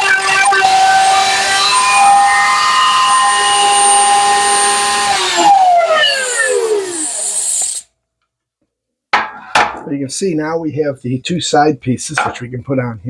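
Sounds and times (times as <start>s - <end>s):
wood router whining: 0.0s - 7.8s.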